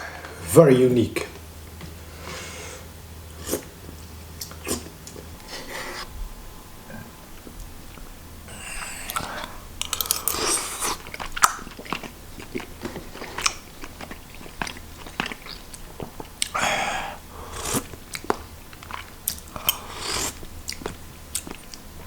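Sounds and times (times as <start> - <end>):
close chewing mouth sounds: 6.9 - 22.0.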